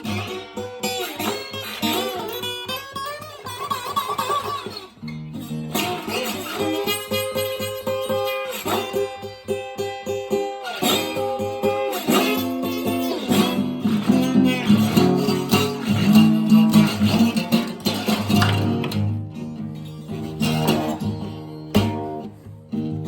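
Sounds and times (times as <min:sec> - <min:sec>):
blues guitar playing: 0:00.0 - 0:23.0.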